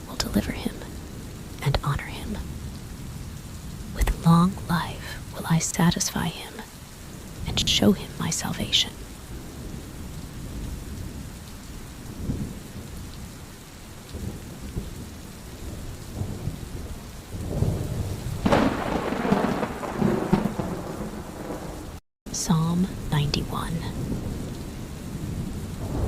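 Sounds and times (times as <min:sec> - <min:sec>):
steady rain: 0:00.0 - 0:26.0
rolling thunder: 0:14.1 - 0:22.0, 0:23.9 - 0:26.0.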